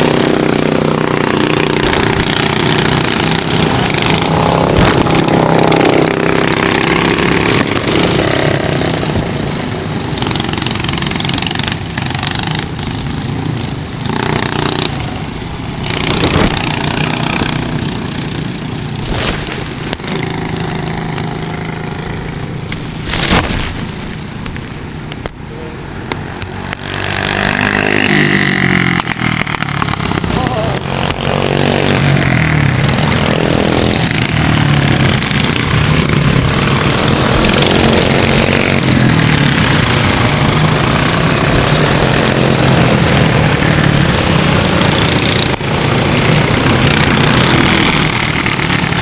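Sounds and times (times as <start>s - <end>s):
kart engine revving: 0.0s - 49.0s
steady rushing noise: 1.0s - 10.0s, 14.1s - 27.7s.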